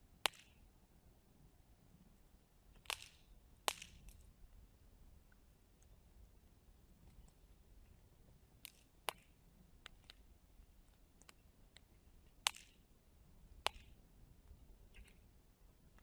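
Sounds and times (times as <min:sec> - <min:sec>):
faint low rumble: 0:00.0 - 0:16.0
loud pops from fire: 0:02.8 - 0:04.2.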